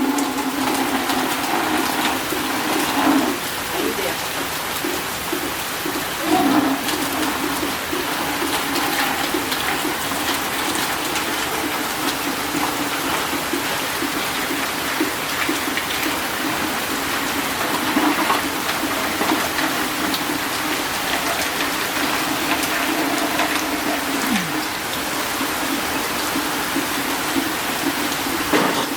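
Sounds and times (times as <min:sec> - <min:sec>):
rain falling: 0:00.0 - 0:28.9.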